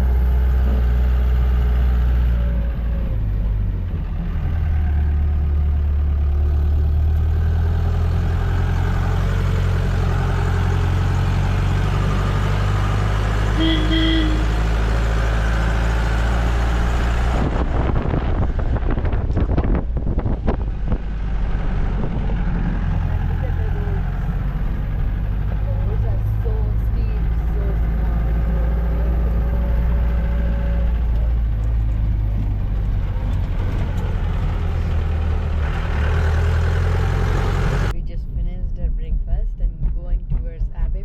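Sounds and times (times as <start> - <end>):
vehicle engine droning: 0.0 - 41.0
irregular knocks and rumbling: 14.7 - 41.0.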